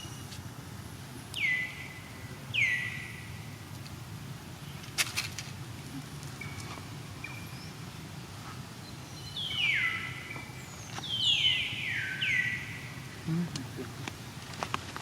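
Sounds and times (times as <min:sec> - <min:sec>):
steady background noise: 0:00.0 - 0:15.0
high falling animal calls: 0:09.4 - 0:13.8.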